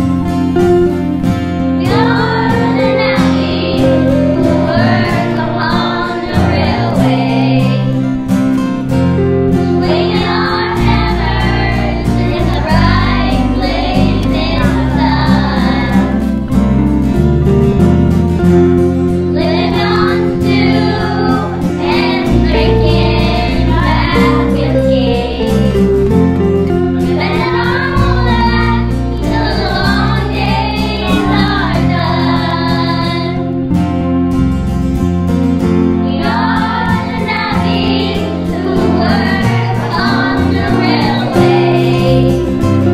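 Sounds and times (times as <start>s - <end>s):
instrumental backing track: 0.0s - 42.9s
children's choir singing: 1.8s - 8.2s, 9.5s - 16.5s, 19.2s - 33.7s, 35.9s - 42.9s.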